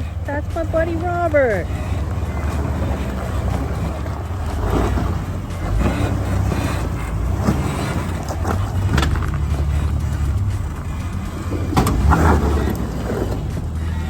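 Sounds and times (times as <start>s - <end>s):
vehicle engine low rumble: 0.0s - 14.0s
sharp knocks: 5.8s - 12.9s.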